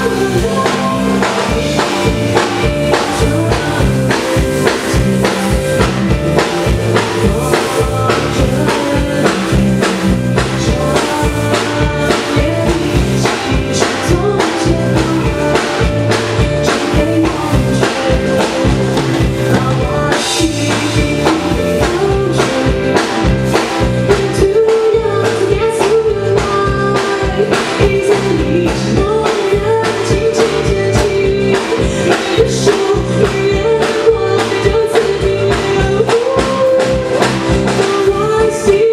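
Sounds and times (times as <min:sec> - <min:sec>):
drum kit beat: 0:00.0 - 0:38.9
rock band playing: 0:00.0 - 0:38.9.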